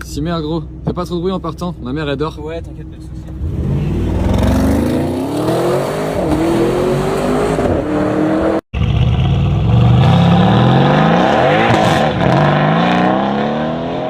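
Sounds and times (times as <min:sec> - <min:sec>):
car engine revving hard: 0:03.4 - 0:08.6, 0:09.7 - 0:14.0.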